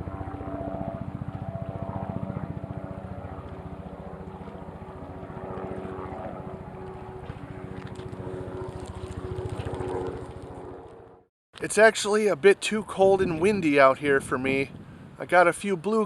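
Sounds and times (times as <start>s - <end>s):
helicopter engine hum: 0.0s - 11.3s
helicopter rotor chop: 0.0s - 11.3s.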